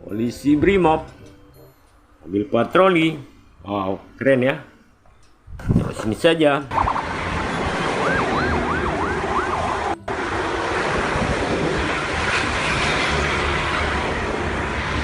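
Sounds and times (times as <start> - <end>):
police siren yelping: 6.7 - 10.4
steady rushing noise: 6.7 - 15.0.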